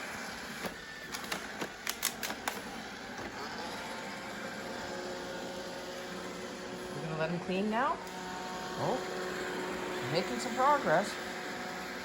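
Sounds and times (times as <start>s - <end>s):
robot vacuum motor whirring: 0.0s - 6.9s.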